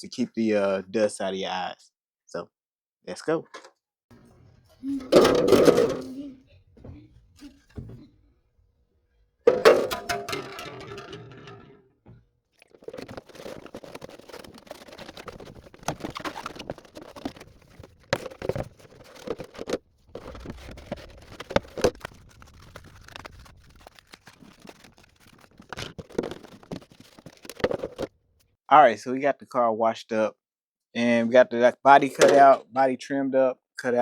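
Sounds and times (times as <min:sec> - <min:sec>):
plastic scraping and rubbing: 0:04.5 - 0:08.3, 0:09.5 - 0:11.8, 0:12.6 - 0:28.5.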